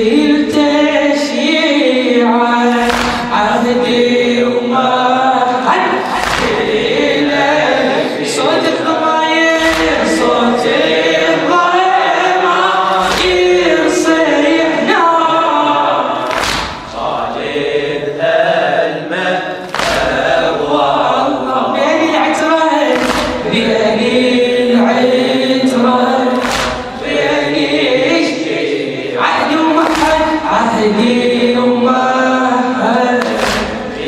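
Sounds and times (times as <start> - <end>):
men chanting a lament: 0.0 - 34.0
heavy chest-beating thumps: 6.1 - 6.9, 23.0 - 23.6.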